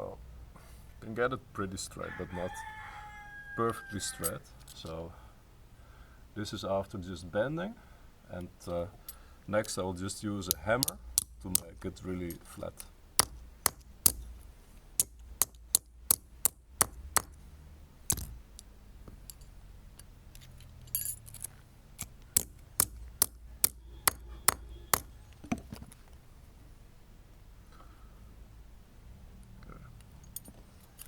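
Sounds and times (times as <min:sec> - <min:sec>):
hammer striking metal strap: 0:10.4 - 0:17.4, 0:18.1 - 0:19.4, 0:20.4 - 0:26.0.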